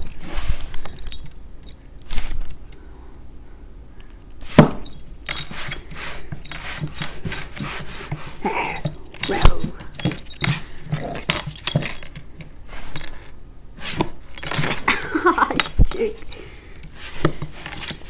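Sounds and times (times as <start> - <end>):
jingling and clinking: 0.0 - 1.9, 4.8 - 13.4, 14.3 - 18.0
rustling: 0.0 - 2.8, 4.0 - 18.0.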